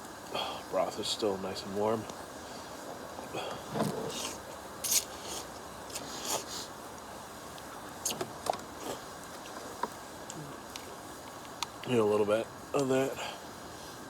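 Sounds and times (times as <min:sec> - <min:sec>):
person slurping: 0:04.0 - 0:06.5.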